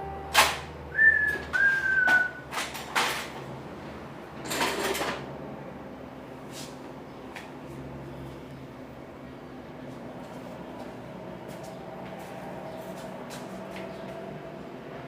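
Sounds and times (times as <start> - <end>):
high whistle-like falling tone: 0.9 - 2.4.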